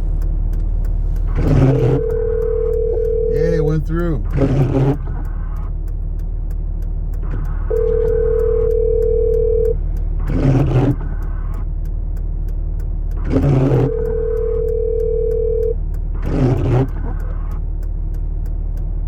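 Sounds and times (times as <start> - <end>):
truck engine idling: 0.0 - 16.2
telephone ringback tone: 7.8 - 9.7.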